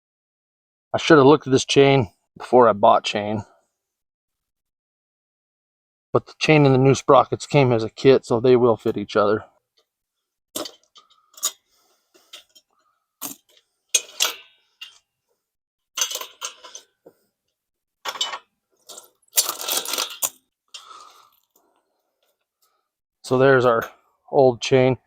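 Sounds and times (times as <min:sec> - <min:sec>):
motorcycle chain clinking and rattling: 0:16.0 - 0:16.9, 0:18.1 - 0:20.4.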